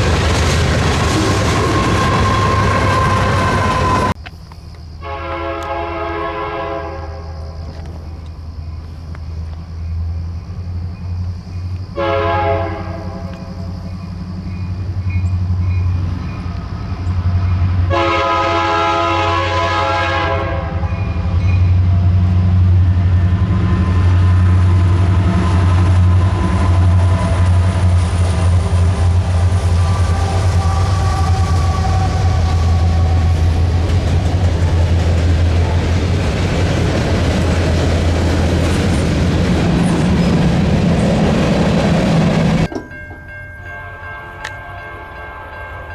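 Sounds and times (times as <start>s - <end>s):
train wheels clattering on rails: 0.0s - 4.9s, 19.8s - 45.9s
diesel engines droning: 0.0s - 45.9s
locomotive horn blasts: 1.5s - 4.2s, 5.0s - 7.6s, 12.0s - 13.6s, 17.8s - 21.3s, 29.6s - 33.8s.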